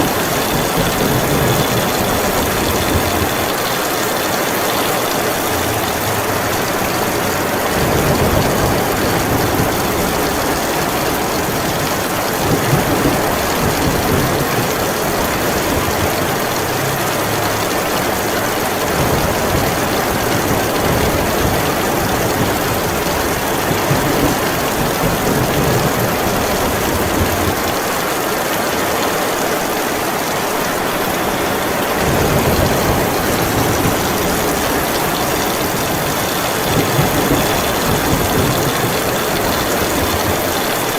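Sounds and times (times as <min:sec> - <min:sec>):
rolling thunder: 0:00.0 - 0:17.6, 0:31.8 - 0:40.9
heavy rain pouring: 0:00.0 - 0:40.9.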